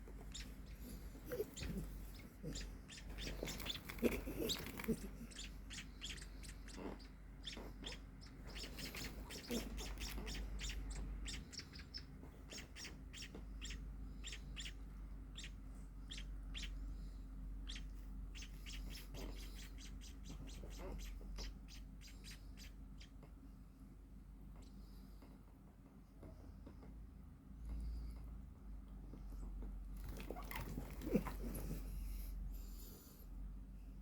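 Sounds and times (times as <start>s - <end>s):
steady low hum: 0.0s - 34.0s
baby birds chirping: 0.1s - 16.9s, 17.6s - 23.2s.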